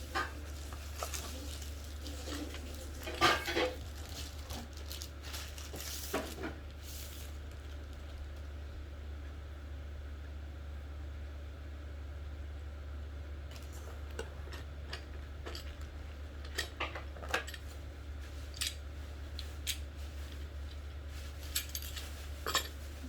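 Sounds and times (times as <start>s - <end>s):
steady low hum: 0.0s - 23.0s
metal parts clicking and clinking: 13.5s - 17.7s, 18.5s - 18.8s, 21.4s - 22.8s.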